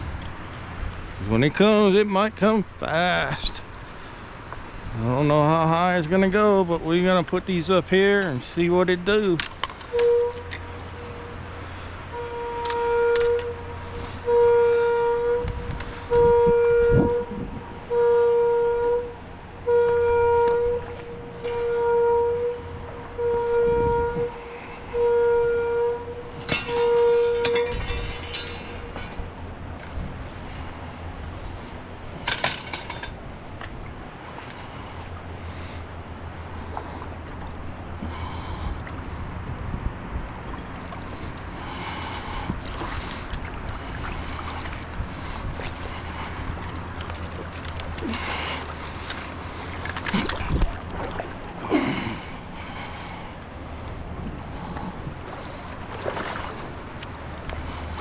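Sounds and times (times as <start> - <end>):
warning horn blasts: 4.9 - 31.6, 41.0 - 50.4
wind buffeting microphone: 13.8 - 17.9, 21.7 - 32.2, 36.6 - 51.6, 53.5 - 58.0
river water gurgling: 32.9 - 58.0.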